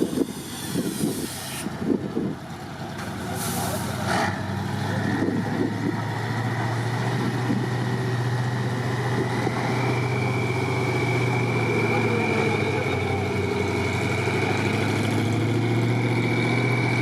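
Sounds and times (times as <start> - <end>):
truck diesel engine under load: 0.0 - 17.0
air hiss burst: 0.3 - 1.7.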